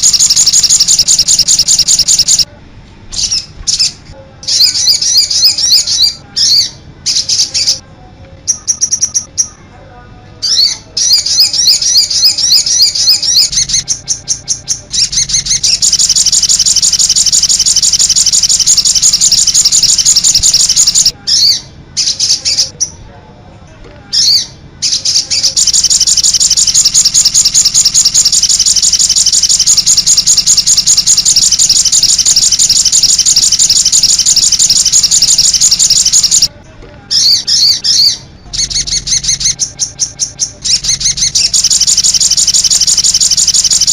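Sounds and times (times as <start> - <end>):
songbird warbling: 0.0 - 2.4, 10.5 - 22.7, 24.2 - 36.5.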